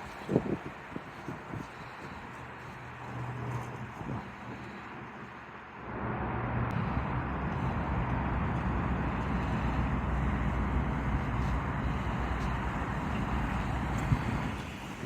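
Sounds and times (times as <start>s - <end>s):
pickup truck engine running: 5.8s - 15.0s.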